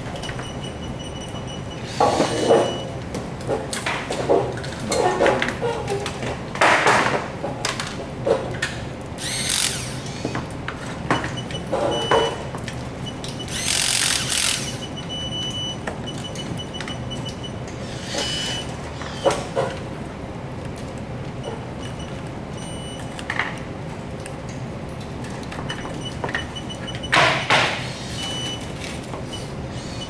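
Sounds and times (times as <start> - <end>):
power tool bursts: 1.8 - 2.8, 9.2 - 10.4, 13.5 - 14.9, 17.8 - 19.6, 27.6 - 28.6, 29.7 - 30.0.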